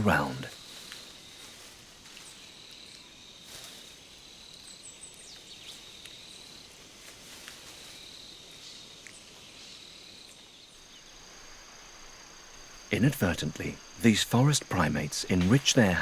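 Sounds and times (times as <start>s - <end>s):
high insect trill: 0.0s - 16.0s
faint snaps: 9.0s - 9.2s.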